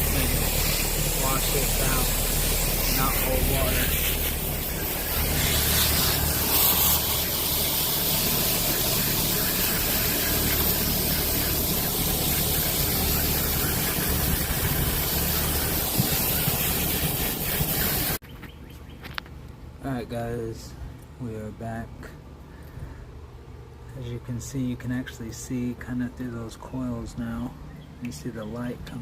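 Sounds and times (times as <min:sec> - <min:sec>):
hose spraying water on metal coils: 0:00.0 - 0:18.2
steady low hum: 0:00.0 - 0:18.2.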